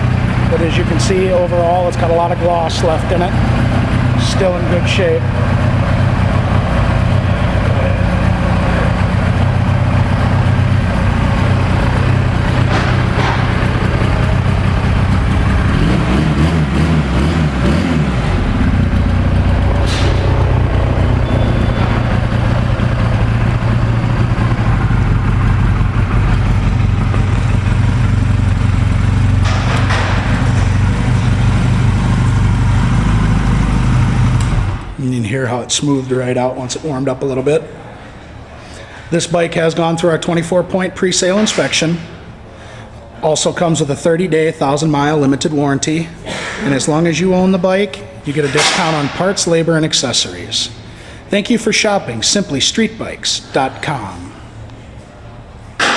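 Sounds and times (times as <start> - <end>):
motorcycle engine idling: 0.0 - 35.0.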